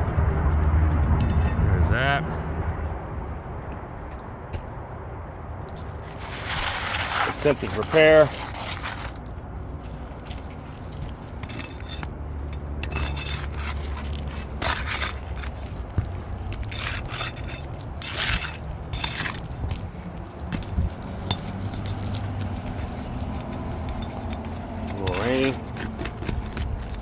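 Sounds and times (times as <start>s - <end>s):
short scrapes and clinks: 1.2s - 2.0s, 5.8s - 9.3s, 10.3s - 19.8s, 20.6s - 27.0s.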